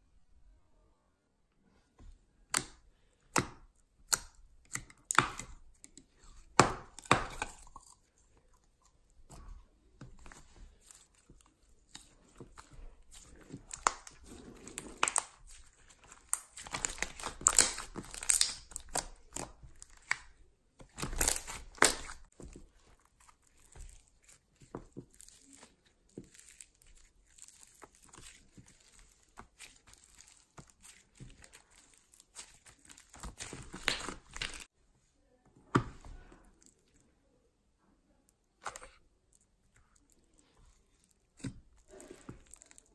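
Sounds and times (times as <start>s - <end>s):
slime crackling and popping: 10.1s - 34.7s, 38.6s - 42.9s.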